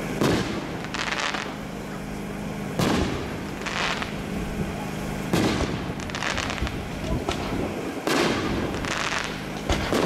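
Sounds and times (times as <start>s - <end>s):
firework crackling: 0.0s - 10.0s
firework shells bursting: 2.8s - 4.3s, 5.2s - 10.0s.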